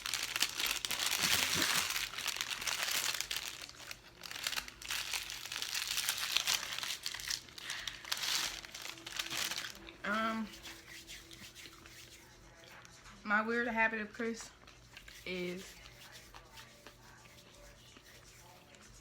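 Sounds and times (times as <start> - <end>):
food packaging crinkling: 0.0 - 12.0.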